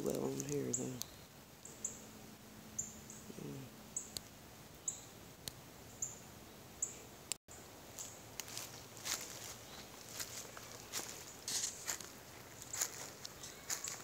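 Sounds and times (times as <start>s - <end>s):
small bird high chirps: 4.8s - 5.2s, 9.4s - 14.0s.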